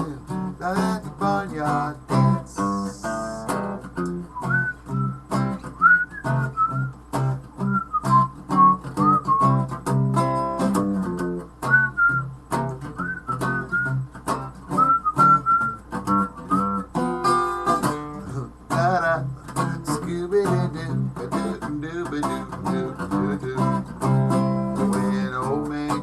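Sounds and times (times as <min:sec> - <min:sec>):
acoustic guitar picked and strummed: 0:00.0 - 0:26.0
whistled melody: 0:04.2 - 0:09.8, 0:11.6 - 0:14.1, 0:14.7 - 0:17.8.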